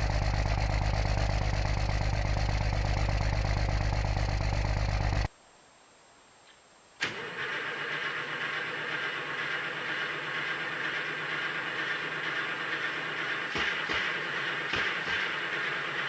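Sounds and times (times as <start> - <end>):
diesel truck engine running: 0.0 - 5.3, 7.1 - 16.0.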